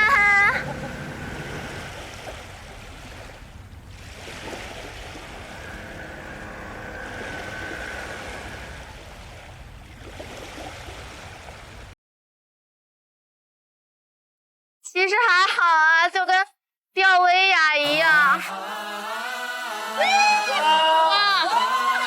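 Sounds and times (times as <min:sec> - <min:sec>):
sea waves rushing: 0:00.0 - 0:12.0
wind: 0:00.0 - 0:12.0.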